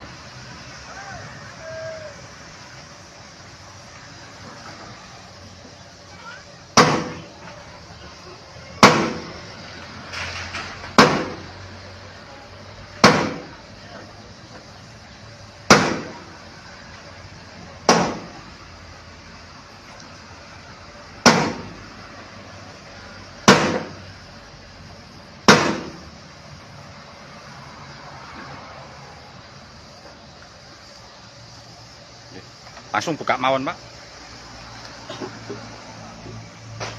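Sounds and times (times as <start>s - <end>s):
heavy knocks on wooden crate: 6.8s - 7.2s, 8.8s - 9.3s, 11.0s - 11.4s, 13.0s - 13.5s, 15.7s - 16.2s, 17.9s - 18.3s, 21.2s - 21.7s, 23.4s - 24.0s, 25.5s - 26.0s.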